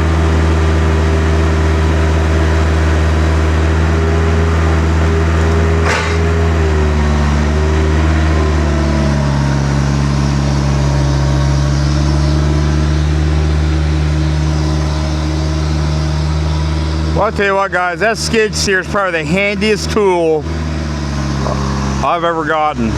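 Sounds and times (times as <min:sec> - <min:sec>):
vehicle engine running: 0:00.0 - 0:22.9
sharp knock: 0:05.8 - 0:06.4.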